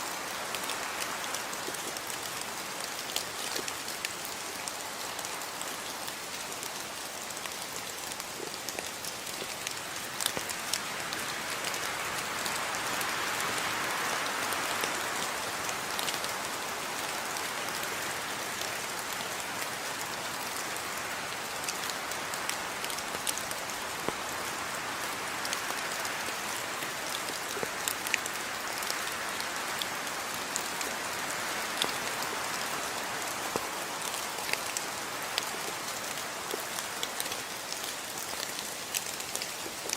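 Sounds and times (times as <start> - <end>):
steady rain hiss: 0.0 - 39.9
raindrops ticking on hard surface: 1.4 - 11.8.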